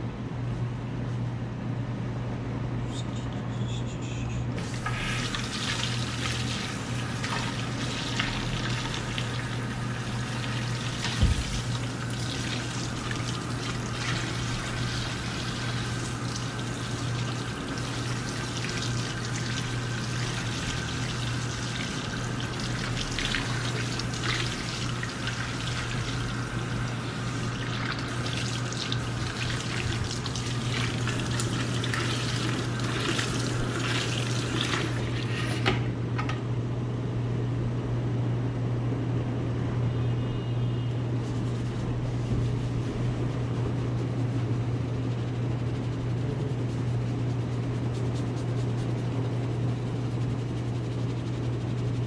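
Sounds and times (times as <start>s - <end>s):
tap water running into basin: 4.6s - 35.7s.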